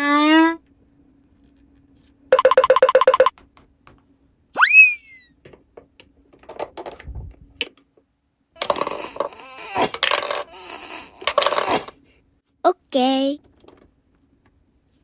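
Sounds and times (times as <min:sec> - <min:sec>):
cartoon whistle swoop: 0:04.6 - 0:05.4
clattering: 0:08.6 - 0:10.5.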